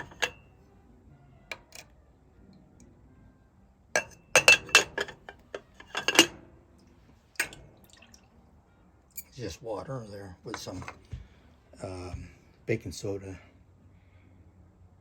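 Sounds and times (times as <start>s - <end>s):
metal tongs clinking against a dish: 0.0s - 0.4s, 4.0s - 6.4s.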